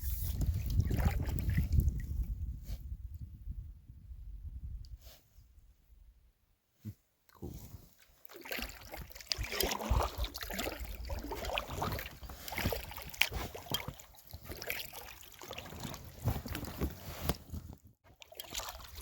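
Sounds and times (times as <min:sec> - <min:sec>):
wind on microphone: 0:00.0 - 0:05.1
paddle splashing in water: 0:00.2 - 0:02.0, 0:08.1 - 0:17.4, 0:18.1 - 0:19.0.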